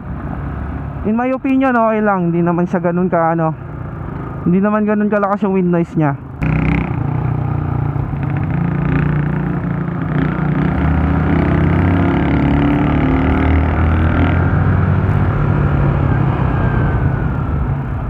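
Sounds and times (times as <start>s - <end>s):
motorcycle engine running: 6.2s - 16.2s.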